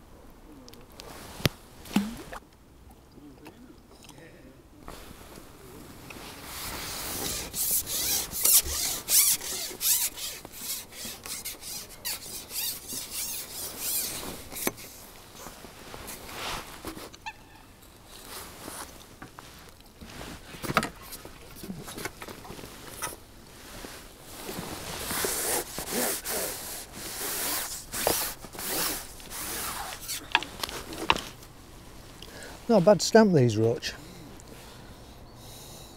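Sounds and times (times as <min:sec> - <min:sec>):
rubbing and scraping: 0:06.2 - 0:17.1, 0:18.1 - 0:32.0.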